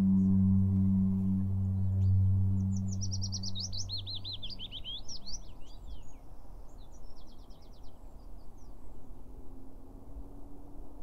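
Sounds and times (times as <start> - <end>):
low ringing tone: 0.0 - 4.8
songbird whistling song: 0.0 - 8.7.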